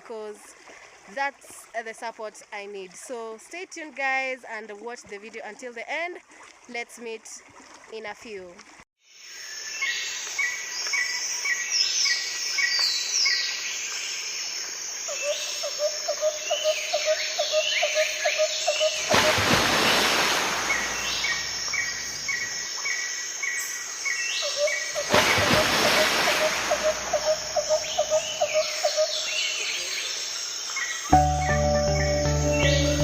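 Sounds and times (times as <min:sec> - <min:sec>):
rapid pulsing insect-like call: 0:14.2 - 0:29.4
birds chirping: 0:16.5 - 0:22.7, 0:24.3 - 0:30.2
rushing hiss: 0:19.0 - 0:21.8.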